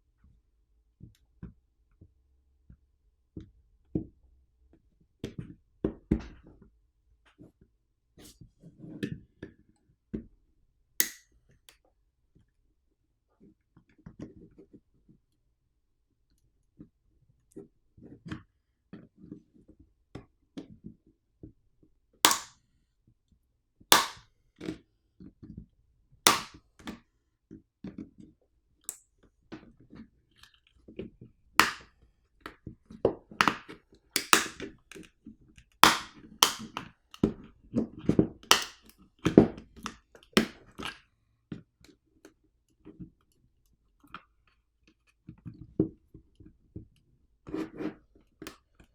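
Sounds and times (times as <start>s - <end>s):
plastic case cracking and snapping: 22.3s - 22.5s, 26.3s - 26.6s, 31.6s - 31.8s, 34.2s - 34.6s, 35.8s - 36.7s, 38.5s - 38.8s.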